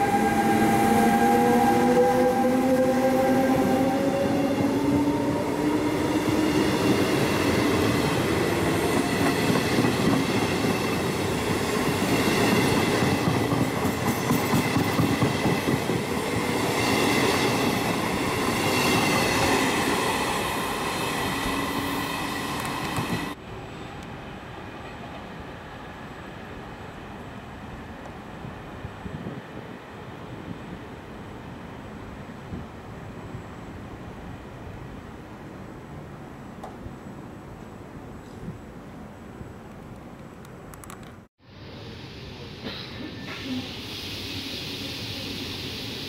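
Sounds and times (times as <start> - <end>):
train wheels rumbling and clacking: 0.0 - 23.4.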